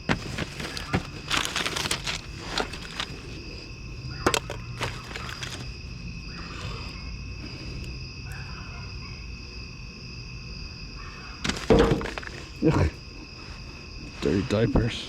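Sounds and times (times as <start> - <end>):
garbage bag rustling: 0.0 - 5.8
items clicking and clattering: 0.0 - 5.8, 11.4 - 12.6.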